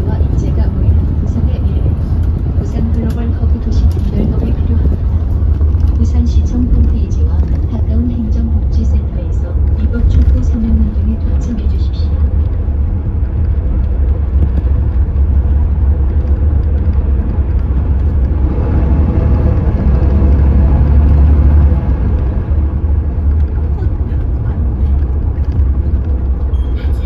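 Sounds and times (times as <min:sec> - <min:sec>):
bus engine deep rumble: 0:00.0 - 0:27.0.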